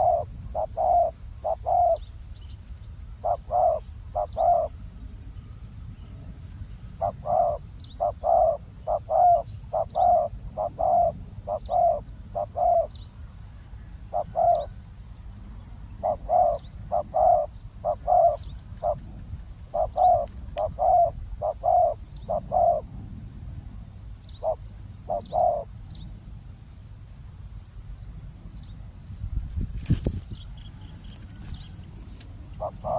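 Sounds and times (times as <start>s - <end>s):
doves cooing: 0.0s - 2.0s, 3.2s - 4.9s, 7.0s - 12.9s, 13.9s - 14.8s, 16.0s - 22.9s, 24.4s - 25.7s, 30.8s - 32.9s.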